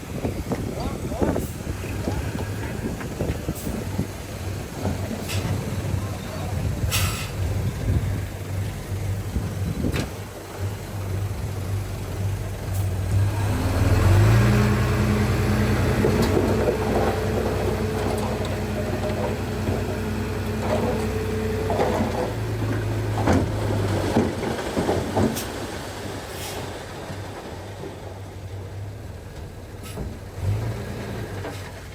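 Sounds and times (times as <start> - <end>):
diesel engine revving: 0.0 - 31.9.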